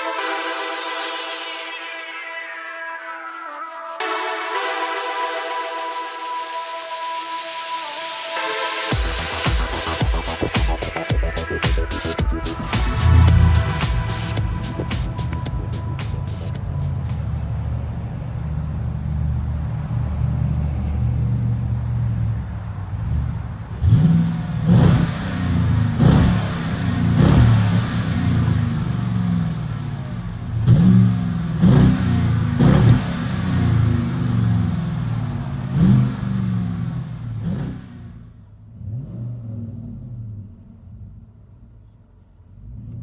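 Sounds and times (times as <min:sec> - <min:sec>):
car engine idling and revving: 0:09.0 - 0:43.0.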